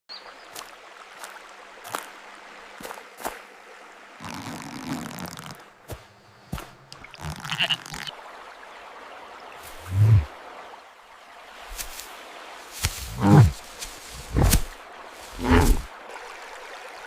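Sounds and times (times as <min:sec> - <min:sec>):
water drips and splashes: 0:00.1 - 0:05.9, 0:06.5 - 0:17.0
stream trickling: 0:00.1 - 0:17.0
lamb bleating: 0:07.2 - 0:08.1.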